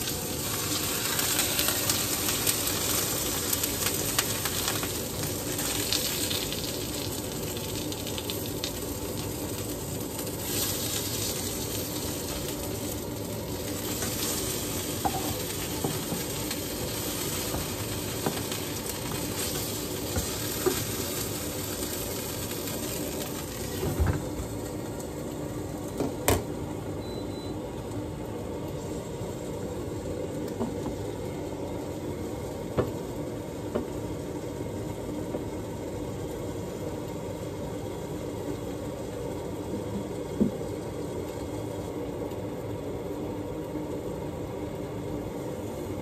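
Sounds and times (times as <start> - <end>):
fish sizzling in frying pan: 0.0 - 25.2.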